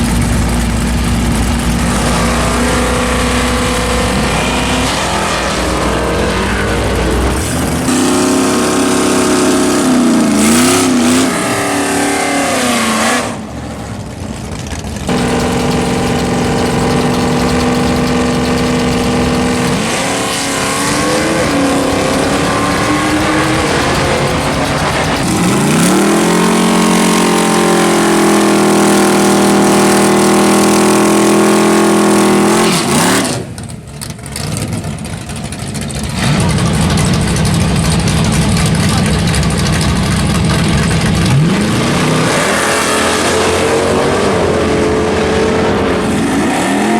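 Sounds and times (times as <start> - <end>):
racing car engines at high rpm: 0.0 - 46.9.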